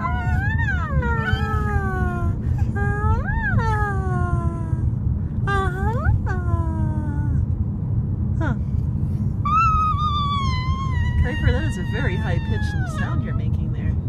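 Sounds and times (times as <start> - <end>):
baby squealing: 0.0 - 2.1, 9.5 - 13.5
car rumble on the road: 0.0 - 14.0.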